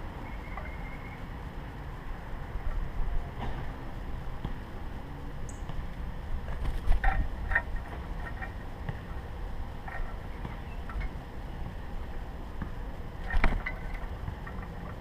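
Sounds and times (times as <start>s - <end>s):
wind rumble on microphone: 5.4s - 15.0s
birds tapping at a feeder: 6.5s - 15.0s.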